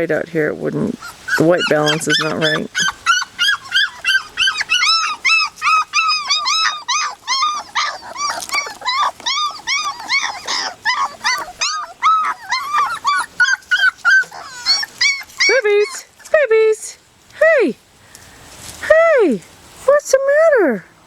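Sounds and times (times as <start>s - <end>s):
puppies whining and crying: 0.8s - 16.2s.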